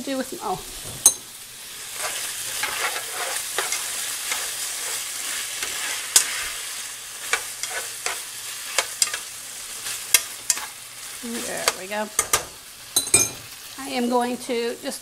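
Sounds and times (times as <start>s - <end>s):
meat sizzling in oil: 0.0s - 15.0s
cookware clinks: 12.2s - 13.5s.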